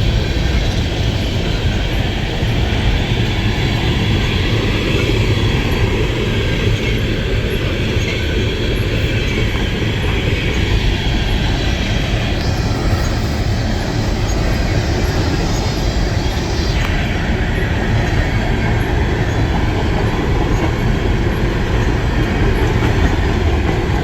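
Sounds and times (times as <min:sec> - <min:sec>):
train cars rolling on rails: 0:00.0 - 0:24.0
high hiss: 0:10.5 - 0:17.2.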